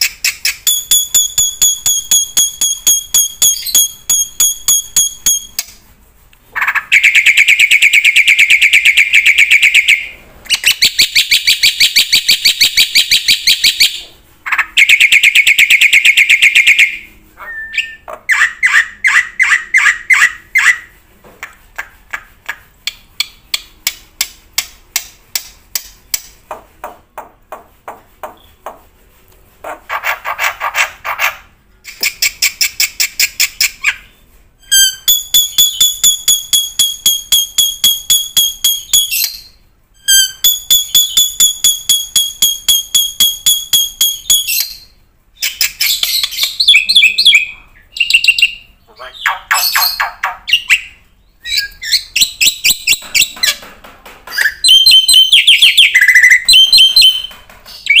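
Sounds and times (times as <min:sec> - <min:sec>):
buzzy pulsed bird trills: 0:00.6 - 0:05.7.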